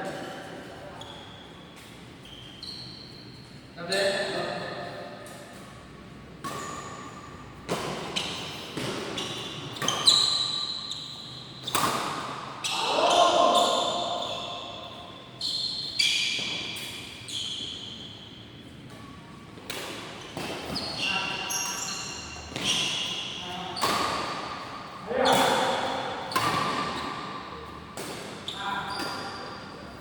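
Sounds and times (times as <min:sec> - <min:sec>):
racket hitting shuttlecock: 0:06.4 - 0:10.4, 0:11.6 - 0:12.8, 0:22.5 - 0:29.3.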